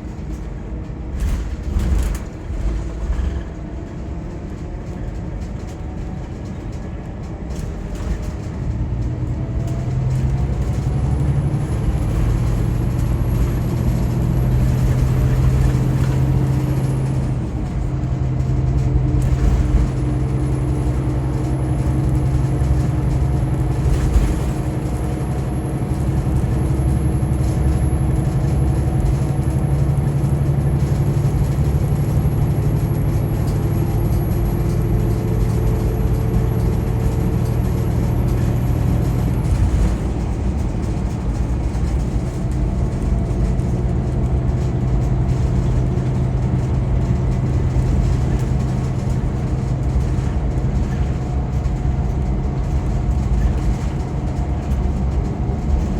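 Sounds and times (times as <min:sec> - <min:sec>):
coach diesel engine running: 0:00.0 - 0:55.9
road and tyre noise: 0:00.0 - 0:55.9.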